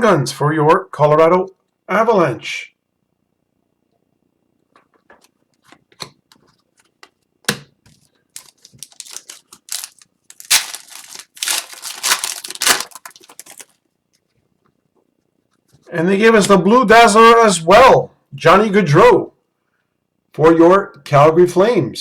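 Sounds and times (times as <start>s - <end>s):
card packaging crinkling: 7.9s - 13.8s.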